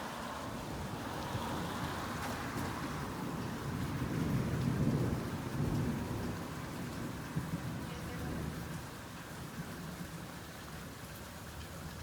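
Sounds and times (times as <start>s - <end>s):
steady rain falling: 0.0s - 12.0s
low roll of thunder: 3.2s - 10.1s.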